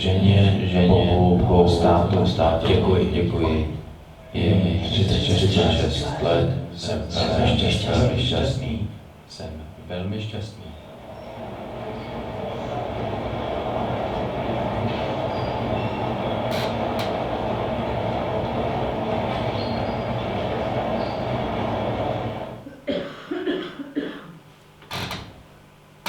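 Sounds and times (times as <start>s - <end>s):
train rumbling on rails: 10.8s - 22.7s.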